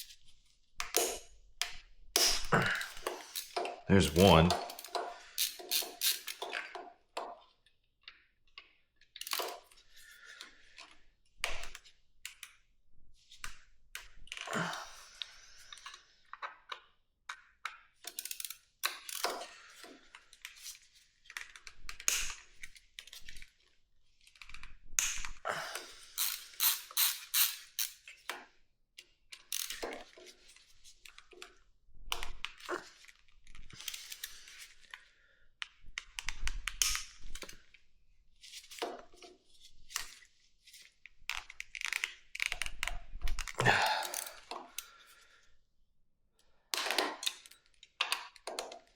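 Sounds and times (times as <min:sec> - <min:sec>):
screwdriver and metal parts clicking: 0:04.6 - 0:06.6, 0:26.2 - 0:28.0.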